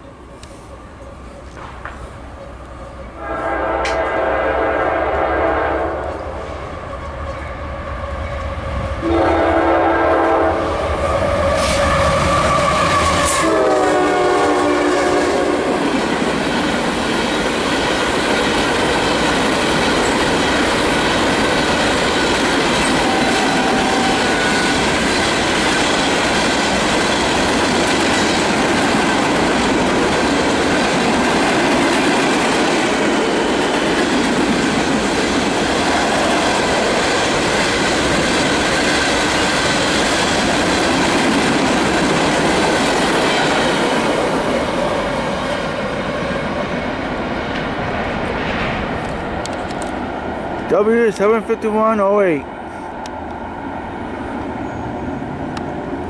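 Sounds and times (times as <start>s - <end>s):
locomotive horn blasts: 3.2s - 6.2s, 9.0s - 15.8s, 23.0s - 24.8s
train wheels clattering on rails: 11.4s - 50.0s.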